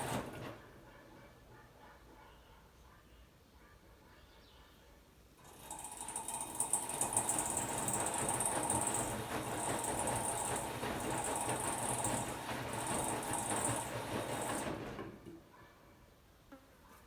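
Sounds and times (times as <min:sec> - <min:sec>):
washer-dryer running: 0:00.0 - 0:00.9, 0:05.4 - 0:15.4.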